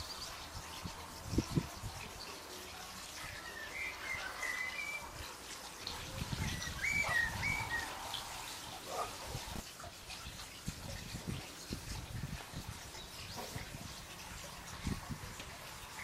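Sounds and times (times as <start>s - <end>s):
bird whistling: 3.4s - 5.1s, 6.5s - 8.0s.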